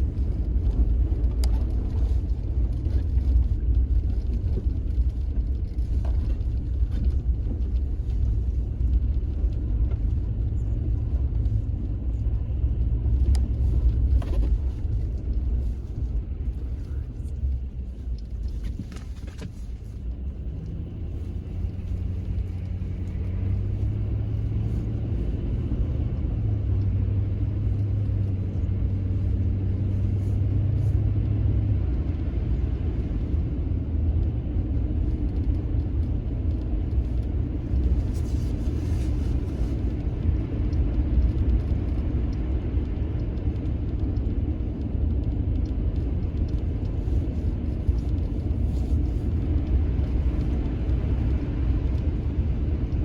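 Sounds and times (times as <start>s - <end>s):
pitched engine hum: 0.0s - 53.0s
vehicle engine low rumble: 0.0s - 53.0s.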